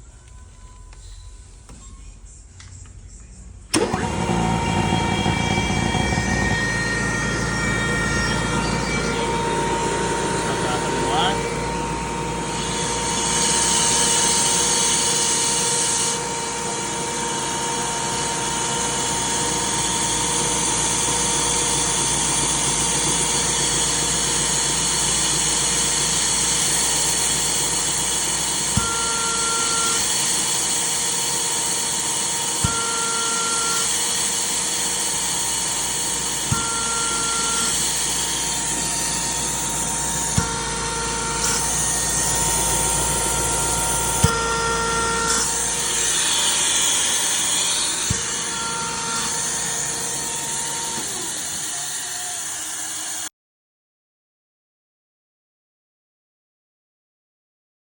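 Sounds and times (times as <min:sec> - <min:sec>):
air compressor running: 0:02.6 - 0:53.3
brief high tone: 0:04.7 - 0:12.4.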